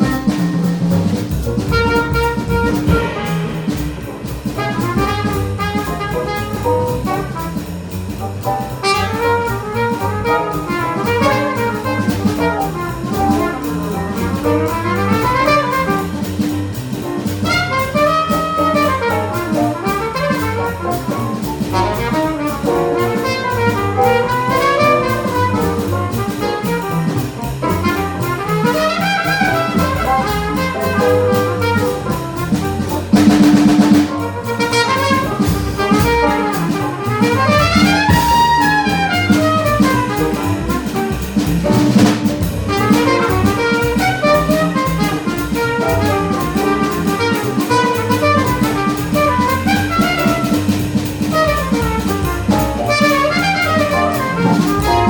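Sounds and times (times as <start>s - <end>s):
jazz combo playing: 0.0s - 55.0s
loud held horn note: 1.6s - 7.2s.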